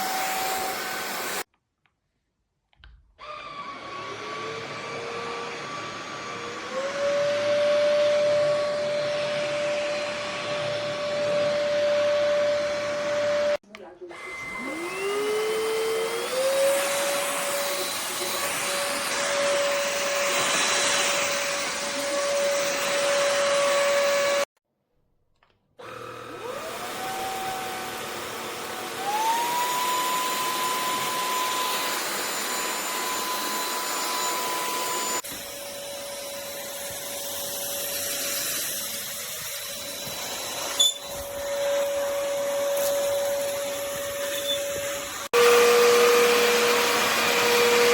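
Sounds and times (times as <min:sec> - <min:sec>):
stick vacuum motor whining: 0:14.2 - 0:24.5, 0:25.8 - 0:47.9.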